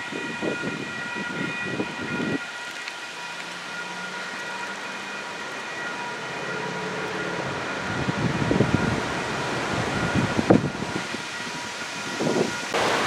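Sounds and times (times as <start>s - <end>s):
wind gusting against microphone: 0.0s - 2.4s, 7.3s - 13.0s
high held chord: 12.8s - 13.0s.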